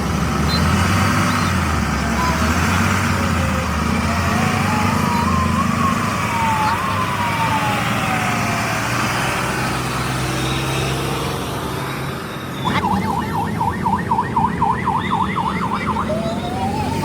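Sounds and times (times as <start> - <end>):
electronic siren wailing and yelping: 1.3 - 8.8, 11.8 - 17.0.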